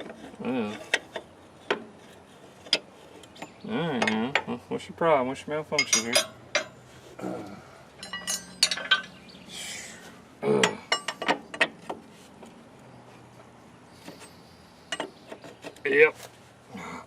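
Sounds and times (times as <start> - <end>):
metal tools clinking: 5.6 - 6.8, 8.0 - 9.3, 10.6 - 11.7.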